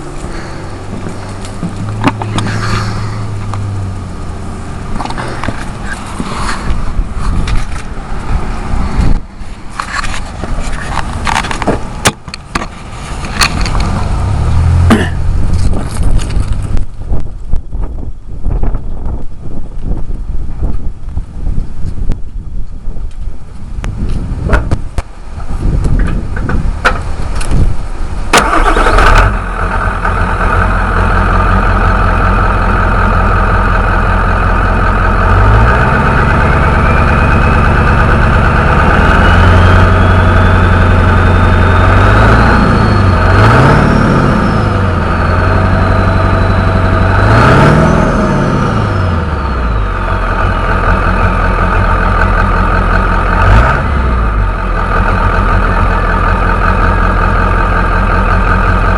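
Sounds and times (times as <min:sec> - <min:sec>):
engine revving: 0:00.0 - 0:06.8, 0:13.1 - 0:16.3, 0:28.4 - 0:58.9
engine knocks: 0:00.0 - 0:19.2, 0:25.8 - 0:58.9
diesel engine running: 0:00.0 - 0:58.9
turbocharger whistle: 0:35.6 - 0:49.8.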